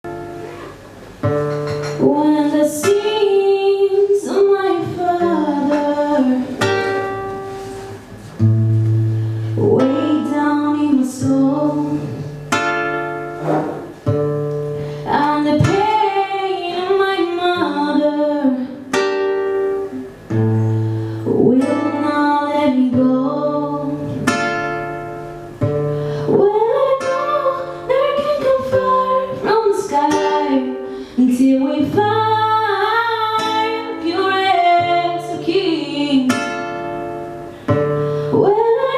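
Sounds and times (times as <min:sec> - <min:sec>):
plucked acoustic guitar: 0:00.0 - 0:38.9
woman singing: 0:01.9 - 0:07.4, 0:09.6 - 0:12.5, 0:15.0 - 0:19.1, 0:21.2 - 0:24.8, 0:26.2 - 0:37.0, 0:38.2 - 0:38.9.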